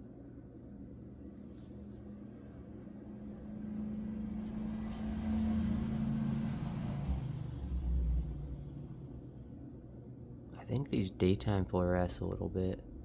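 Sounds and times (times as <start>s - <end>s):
vehicle engine hum: 2.3s - 11.4s
road noise: 3.4s - 9.6s.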